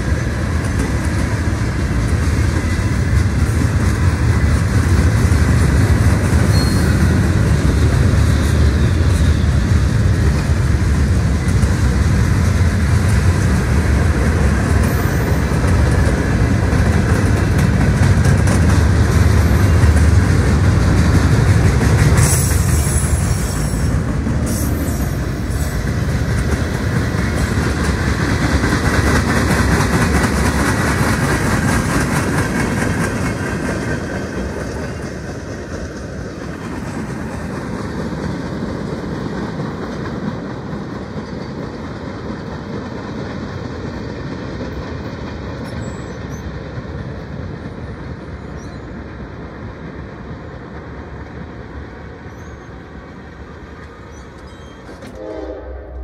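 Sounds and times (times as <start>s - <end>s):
freight train wheels rumbling on rail: 0.0s - 56.0s
high-pitched wheel squeals: 6.5s - 7.0s.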